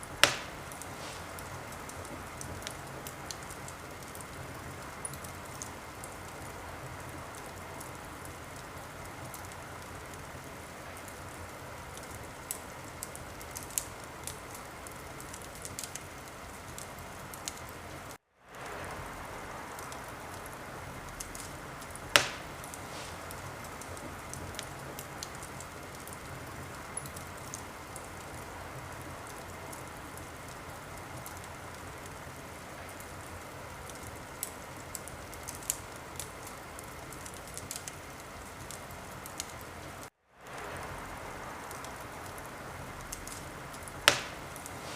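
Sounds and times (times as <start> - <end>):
fire popping sharply: 0.0 - 17.8, 18.5 - 28.4, 40.4 - 44.9
wood fire crackling: 0.0 - 44.9.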